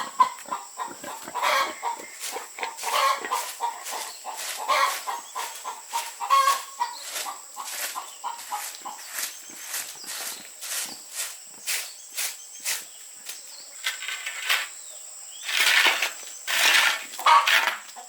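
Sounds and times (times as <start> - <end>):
chickens clucking: 0.0 - 10.9, 16.6 - 18.0
sharp knocks or scrapes: 15.4 - 17.9.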